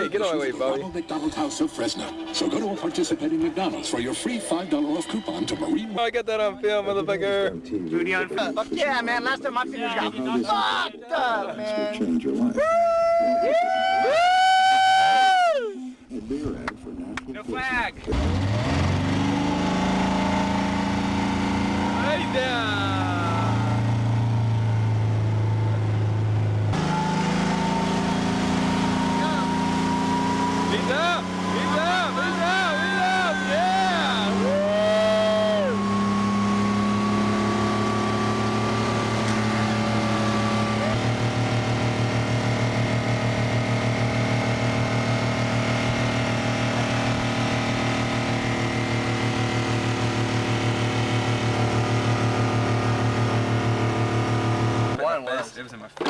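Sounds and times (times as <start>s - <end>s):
motorboat engine running: 18.0s - 55.0s.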